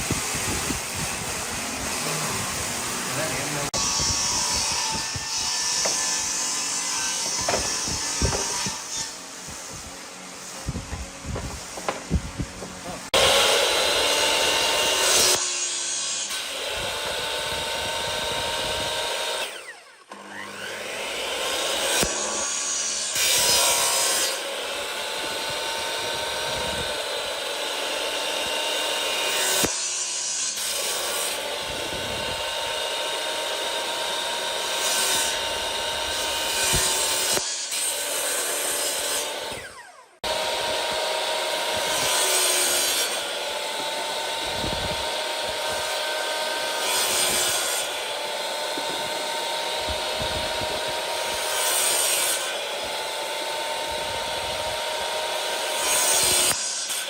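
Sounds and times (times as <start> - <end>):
hissing cut through wood: 0.0 - 16.3
power tool whining: 0.0 - 57.0.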